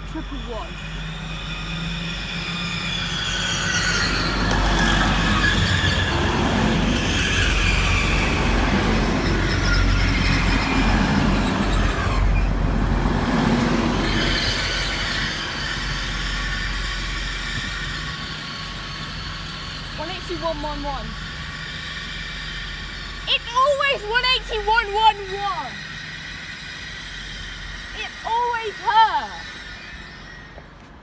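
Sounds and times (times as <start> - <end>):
train rumbling past: 0.0 - 31.0
high squealing tones: 21.1 - 30.8.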